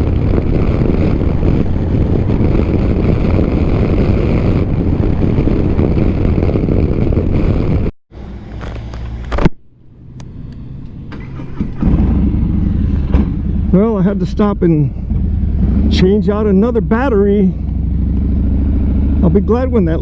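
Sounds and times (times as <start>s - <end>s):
wind rush: 0.0s - 7.9s, 10.2s - 20.0s
motorcycle engine running: 11.2s - 20.0s.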